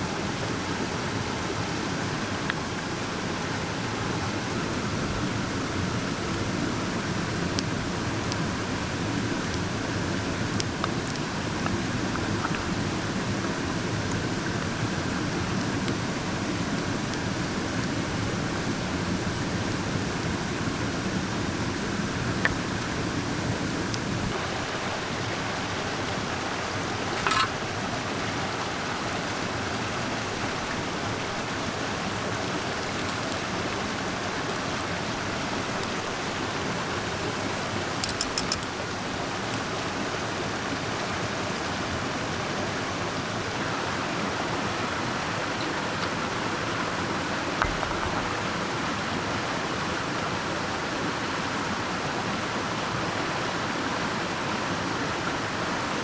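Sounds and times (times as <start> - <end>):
mountain stream rushing: 0.0 - 56.0
sharp clicks: 37.1 - 39.6.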